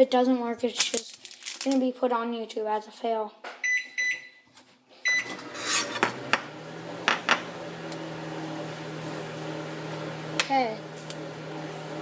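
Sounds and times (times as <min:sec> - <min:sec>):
microwave beep: 0:03.6 - 0:04.4, 0:05.0 - 0:06.6
microwave humming: 0:05.1 - 0:12.0.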